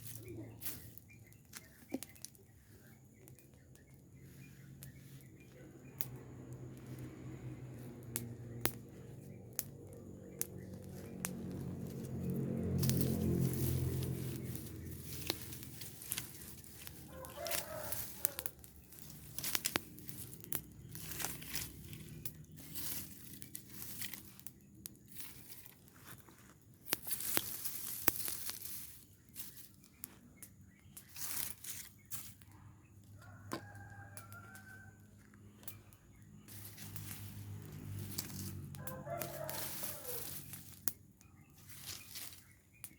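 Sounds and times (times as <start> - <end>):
burning pile crackling: 0.0 - 42.9
rooster crowing: 16.8 - 18.6, 33.2 - 35.4, 38.3 - 40.6.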